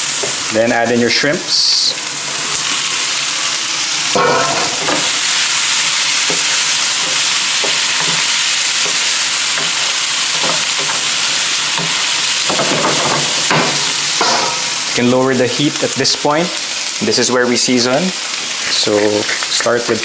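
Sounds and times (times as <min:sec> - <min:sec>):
shrimp sizzling in a frying pan: 0:00.0 - 0:20.0
wooden spatula scraping and tapping: 0:06.2 - 0:11.1
clatter in a pan: 0:11.8 - 0:14.7.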